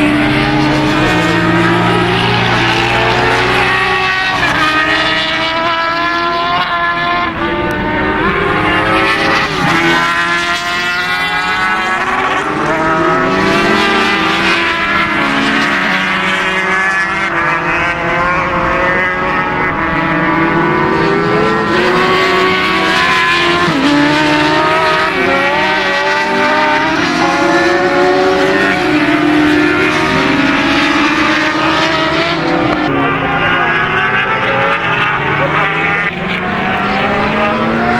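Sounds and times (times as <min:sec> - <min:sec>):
racing motorcycle engines: 0:00.0 - 0:37.9.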